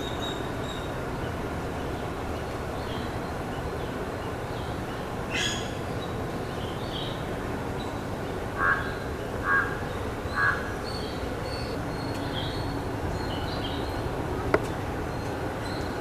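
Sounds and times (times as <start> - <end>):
small birds chirping: 0.0 - 16.0
crow cawing: 8.6 - 9.8.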